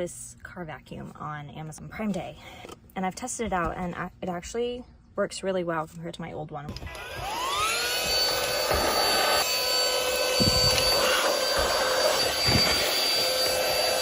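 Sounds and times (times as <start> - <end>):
handheld vacuum motor whining: 6.7 - 14.0.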